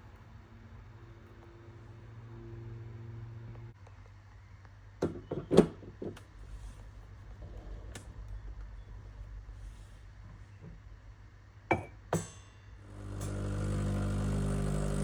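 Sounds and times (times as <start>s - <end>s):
espresso machine pump humming: 12.8s - 15.0s.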